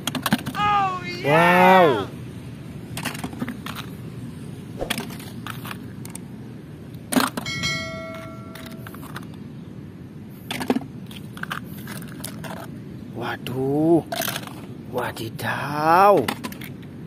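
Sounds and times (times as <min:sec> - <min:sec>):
brief ringing tone: 0:07.5 - 0:08.9.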